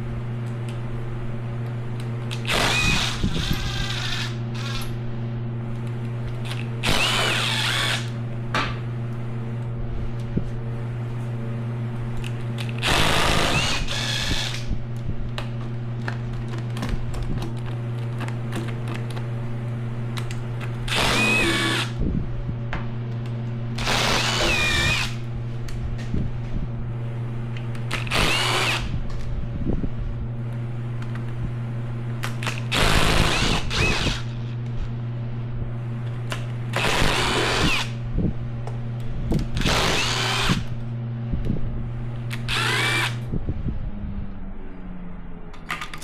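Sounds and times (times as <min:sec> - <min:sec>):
steady low hum: 0:00.0 - 0:46.0
power drill whining: 0:02.4 - 0:04.9, 0:06.8 - 0:08.2, 0:12.8 - 0:14.7, 0:20.9 - 0:22.0, 0:23.8 - 0:25.2, 0:27.9 - 0:29.0, 0:32.4 - 0:34.4, 0:36.8 - 0:38.0, 0:39.6 - 0:40.7, 0:42.3 - 0:43.2.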